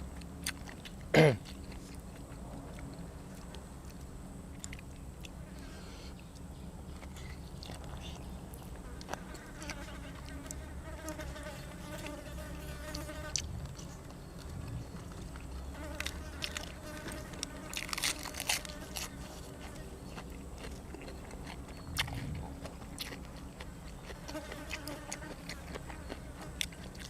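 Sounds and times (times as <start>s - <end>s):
crunching and chewing clicks: 0.1s - 5.4s, 6.1s - 12.2s, 12.8s - 27.0s
fly buzzing: 9.4s - 13.6s.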